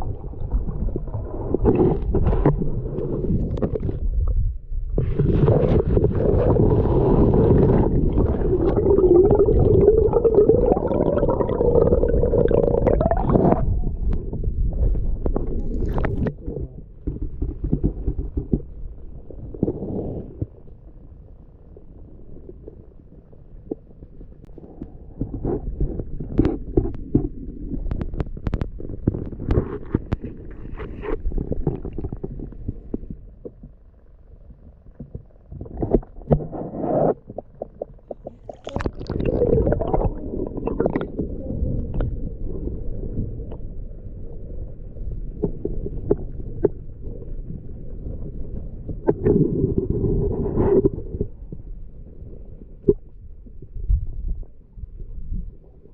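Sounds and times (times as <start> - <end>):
muffled underwater rumble: 0.0 - 55.9
underwater clicks and knocks: 12.4 - 19.8, 24.4 - 33.9, 34.8 - 42.2.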